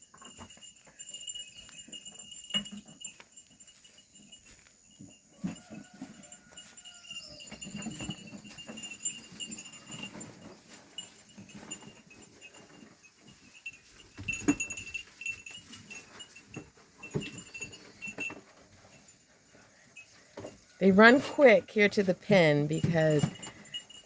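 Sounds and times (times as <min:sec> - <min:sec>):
sheep bells clinking: 0:00.0 - 0:24.0
hooves knocking: 0:19.6 - 0:24.0.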